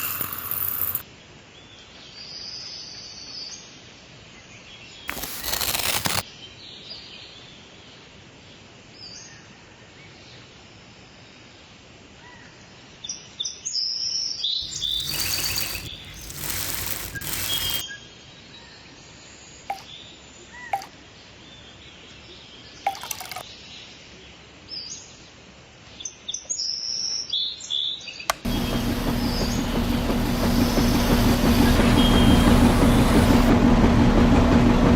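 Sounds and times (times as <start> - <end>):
sharp clicks: 28.3 - 32.3.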